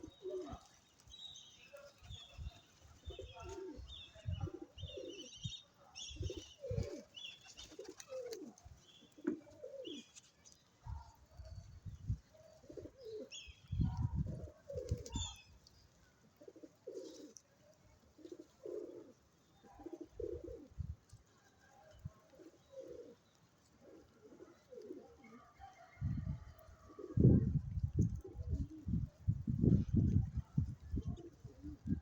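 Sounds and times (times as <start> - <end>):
pigeons cooing: 0.0 - 0.8, 3.0 - 10.2, 10.9 - 15.5, 16.2 - 17.4, 18.0 - 20.8, 22.0 - 25.6, 26.4 - 32.0.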